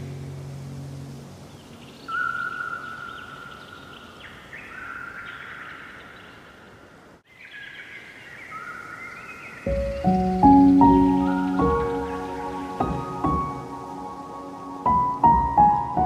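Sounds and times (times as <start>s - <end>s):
faint hiss: 0.0s - 16.0s
bird chirps: 1.4s - 13.8s.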